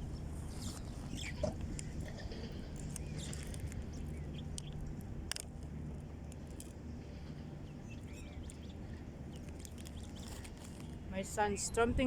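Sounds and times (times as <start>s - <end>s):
steady low hum: 0.0s - 12.0s
faint bird chirps: 7.6s - 10.9s.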